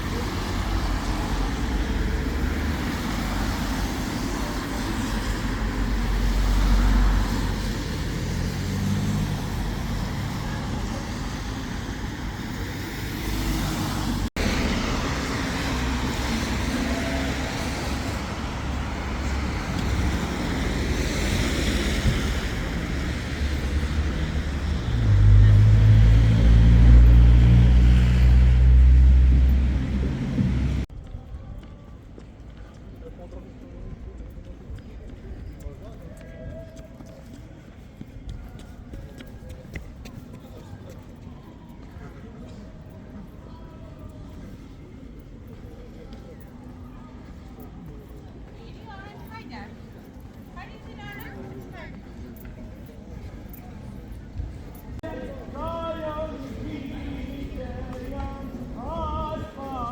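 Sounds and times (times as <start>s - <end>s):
street traffic passing: 0.0s - 59.9s
deep engine rumble nearby: 21.8s - 30.9s.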